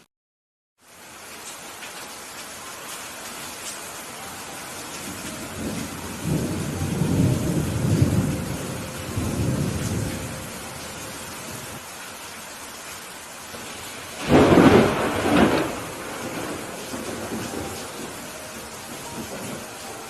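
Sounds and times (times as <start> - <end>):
steady rain: 0.8 - 20.0
thunder rumble: 4.8 - 11.8, 13.5 - 20.0.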